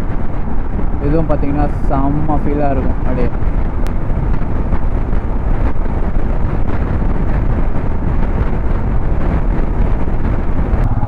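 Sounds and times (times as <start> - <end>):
wind buffeting microphone: 0.0 - 11.0
motorcycle engine running: 3.2 - 11.0.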